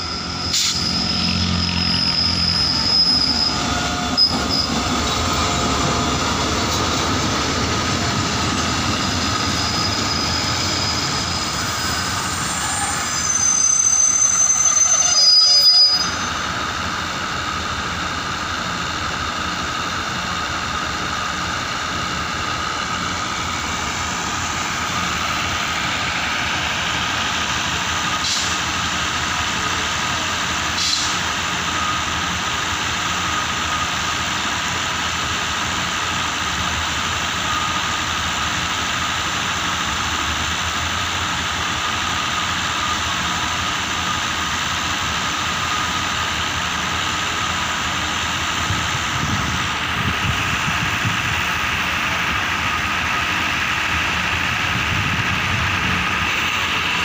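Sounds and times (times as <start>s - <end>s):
wheel and brake squeals: 0.0s - 6.1s, 6.8s - 16.6s, 37.3s - 38.7s
train rumbling: 0.0s - 57.0s.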